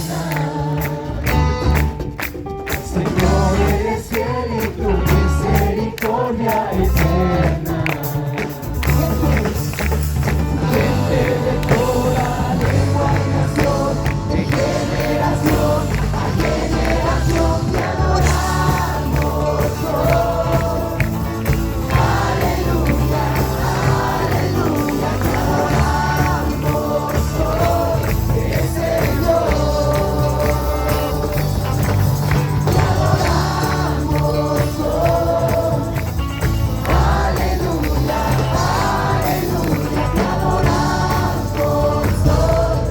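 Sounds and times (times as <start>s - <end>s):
group singing worship song: 0.0s - 2.1s, 2.7s - 42.9s
band accompaniment with heavy bass: 0.0s - 42.9s.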